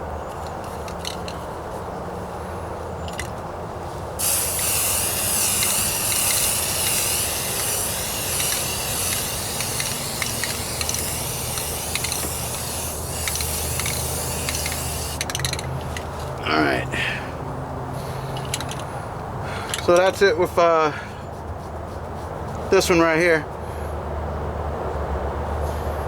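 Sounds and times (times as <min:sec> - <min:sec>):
aerosol can spraying: 0:04.2 - 0:15.3.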